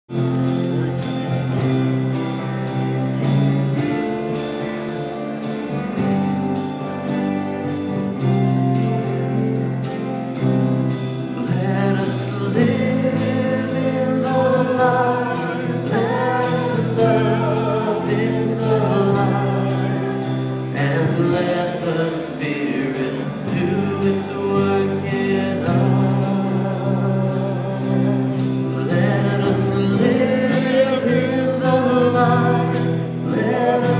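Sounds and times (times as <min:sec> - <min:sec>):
keyboard chords over beat: 0:00.1 - 0:33.9
voices singing: 0:11.4 - 0:33.9.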